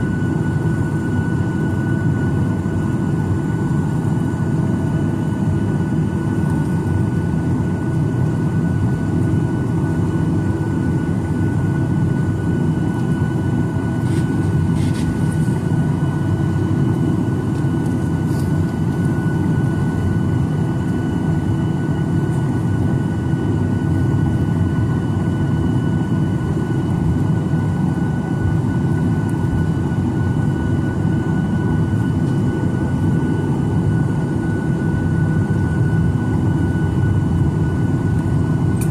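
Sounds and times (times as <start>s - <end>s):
jet engine rumble in cabin: 0.0s - 38.9s.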